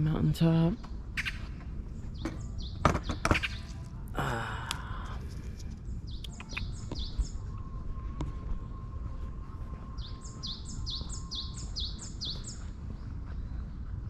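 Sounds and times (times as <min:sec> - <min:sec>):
songbirds chirping: 0:00.0 - 0:14.0
breathy sigh: 0:04.1 - 0:05.3.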